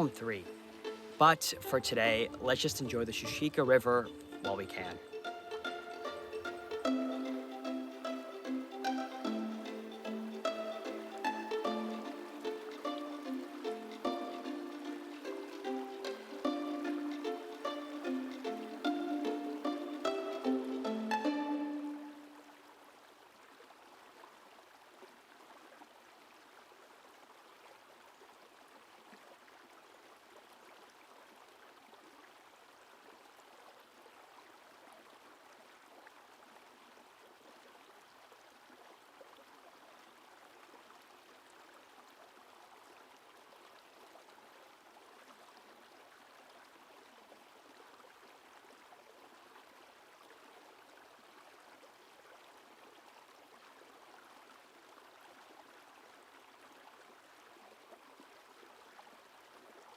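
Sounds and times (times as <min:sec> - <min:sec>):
river water flowing: 0:00.0 - 0:59.9.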